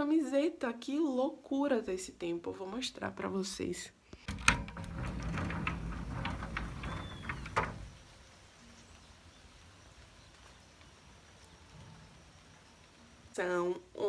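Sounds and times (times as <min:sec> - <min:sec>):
door squeak: 0:04.3 - 0:08.0
door clicks: 0:04.3 - 0:08.1
door opening rumble: 0:04.3 - 0:08.2.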